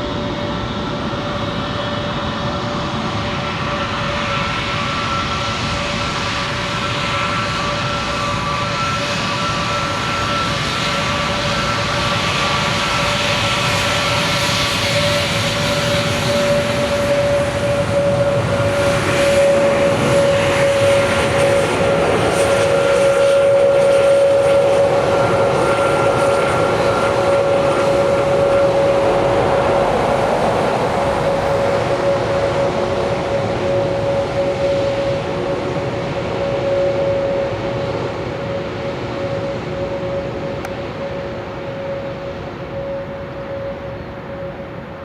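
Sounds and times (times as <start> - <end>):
jet engines roaring: 0.0 - 45.0.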